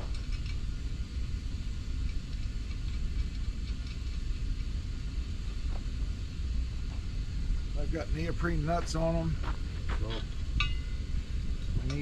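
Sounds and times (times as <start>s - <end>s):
small metal parts clicking: 0.0s - 0.6s
low engine-like rumble: 0.0s - 12.0s.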